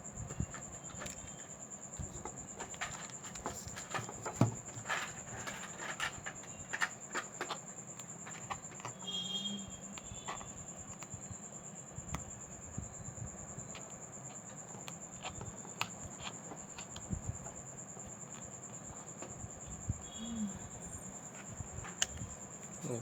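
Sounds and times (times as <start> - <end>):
faint low hum: 0.0 - 23.0
hand tools clicking and tapping: 2.1 - 9.1, 13.7 - 19.2.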